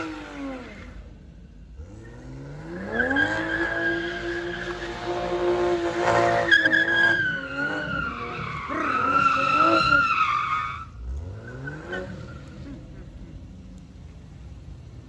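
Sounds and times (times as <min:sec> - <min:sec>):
car engine revving: 0:00.0 - 0:15.0
tyres squealing: 0:06.5 - 0:10.9.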